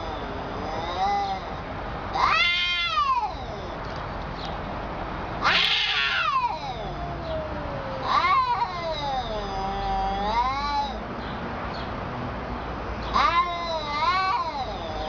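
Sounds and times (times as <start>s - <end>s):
cat yowling: 0.0s - 3.8s, 5.4s - 11.0s, 13.1s - 15.0s.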